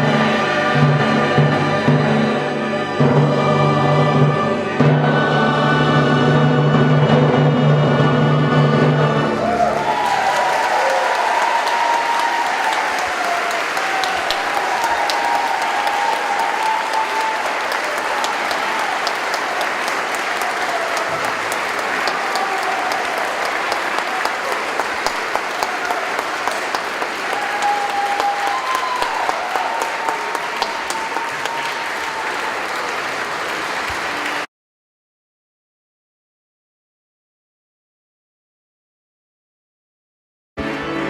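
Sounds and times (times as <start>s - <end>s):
audience applauding: 9.4s - 34.5s.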